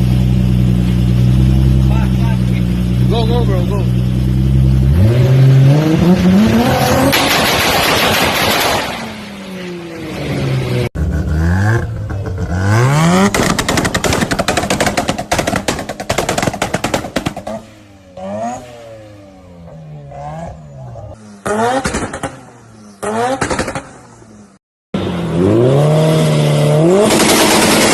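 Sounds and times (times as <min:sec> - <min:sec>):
car engine revving: 0:00.1 - 0:27.9
exhaust crackling and popping: 0:11.0 - 0:17.7.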